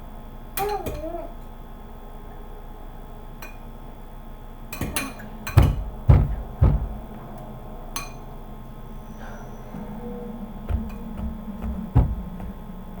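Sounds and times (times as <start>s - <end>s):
utensil clinking against a bowl: 3.4s - 3.7s, 4.7s - 6.9s, 8.0s - 8.3s.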